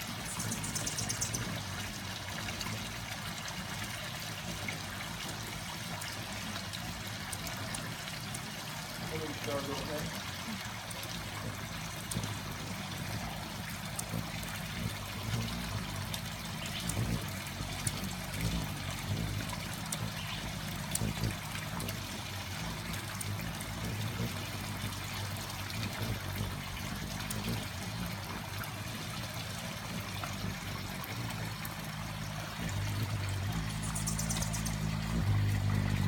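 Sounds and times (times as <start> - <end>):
trickling water-like noise: 0.0 - 36.0
low hum: 29.9 - 36.0.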